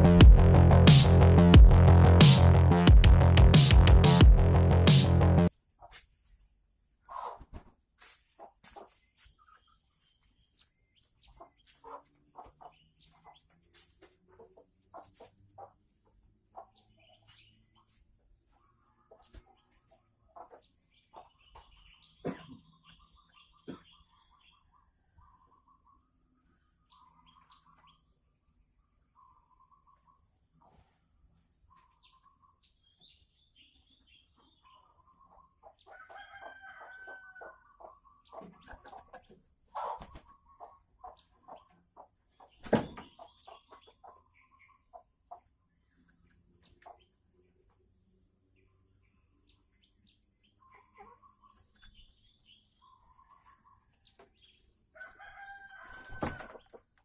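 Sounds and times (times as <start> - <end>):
junglefowl clucking and calling: 7.0 - 9.3, 11.2 - 13.5, 14.3 - 17.4, 18.5 - 26.1, 34.6 - 45.6, 50.5 - 52.0, 55.0 - 56.9.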